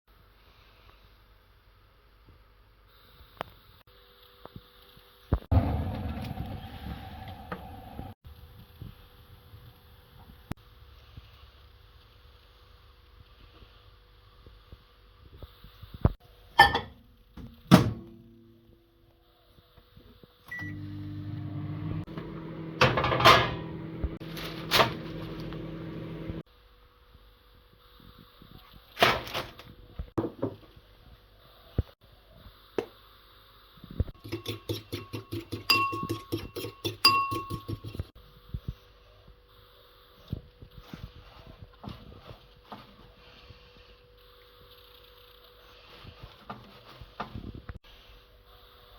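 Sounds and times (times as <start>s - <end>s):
microwave humming: 5.5s - 8.2s, 20.5s - 26.4s
microwave keypad beep: 20.5s - 20.9s.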